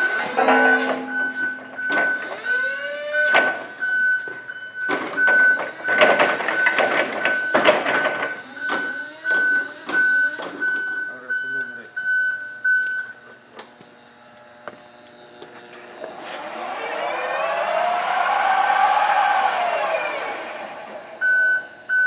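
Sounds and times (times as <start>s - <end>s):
electric whine: 0.0s - 3.8s, 13.2s - 22.0s
rapid high warning beeps: 0.0s - 13.2s.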